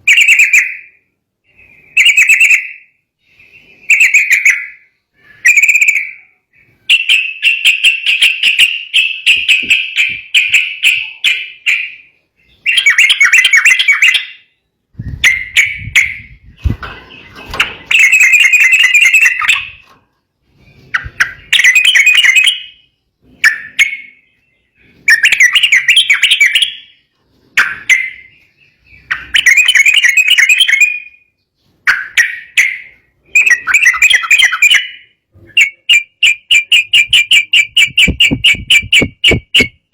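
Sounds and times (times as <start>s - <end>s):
bulbul chattering song: 0.0s - 19.9s, 20.5s - 39.9s
low thuds: 15.0s - 18.0s, 37.7s - 39.8s.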